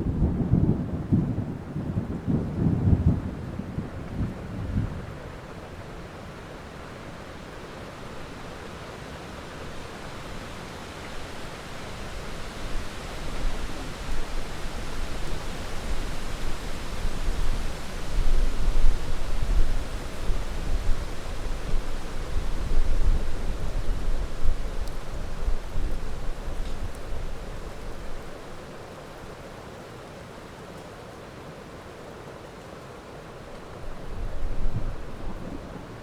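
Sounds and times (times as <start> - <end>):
thunder rumble: 0.0 - 5.2
heavy rain hiss: 0.0 - 36.0.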